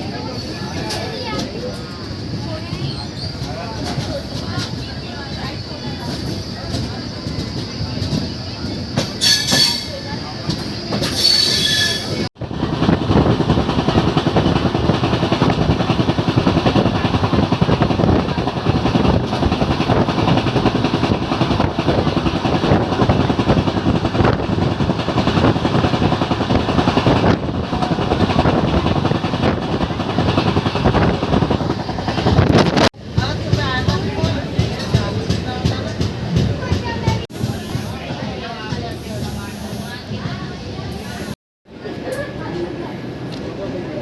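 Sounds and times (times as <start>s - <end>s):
train rumbling and clattering: 0.0s - 44.0s
train wheels squealing: 2.5s - 4.4s, 5.2s - 12.3s.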